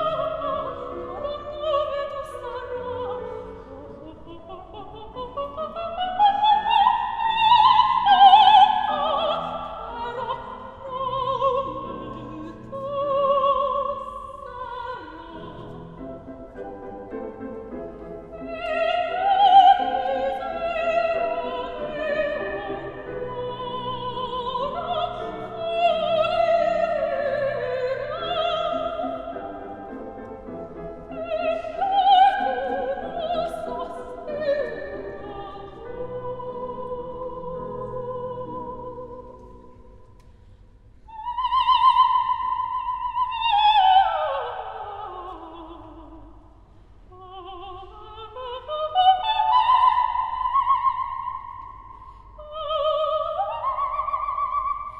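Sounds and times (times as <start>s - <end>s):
operatic singing: 0.0s - 39.6s.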